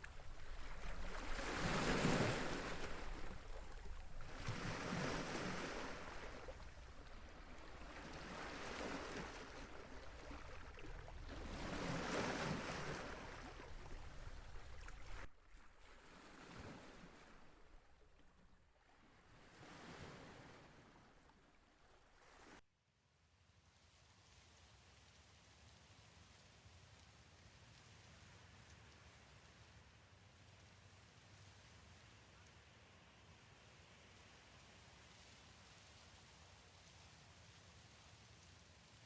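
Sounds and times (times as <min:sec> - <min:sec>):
small waves washing onto shore: 0:00.0 - 0:22.6
wind: 0:00.0 - 0:39.0.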